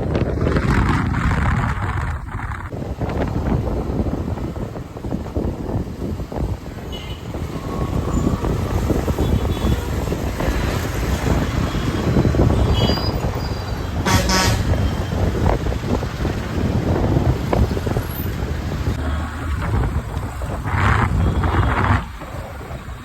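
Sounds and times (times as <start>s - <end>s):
city road traffic: 0.0s - 23.0s
wind buffeting microphone: 0.0s - 23.0s
vehicle horns honking: 6.9s - 7.4s, 9.2s - 10.0s, 11.6s - 15.2s.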